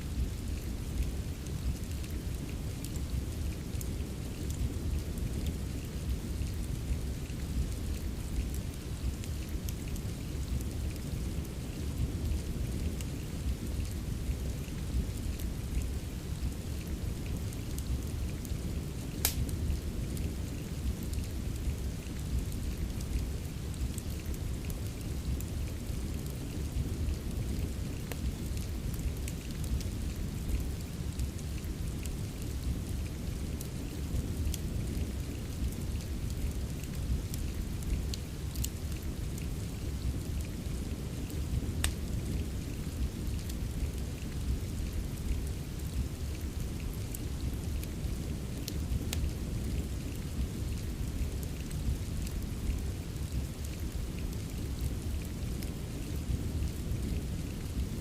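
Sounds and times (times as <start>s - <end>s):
steady rain: 0.0s - 58.0s
wood fire crackling: 0.0s - 58.0s.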